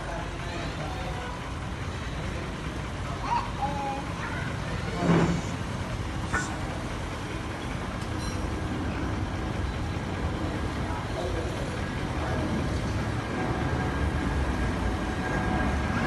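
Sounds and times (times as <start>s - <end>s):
jet engines rumbling: 0.7s - 16.0s.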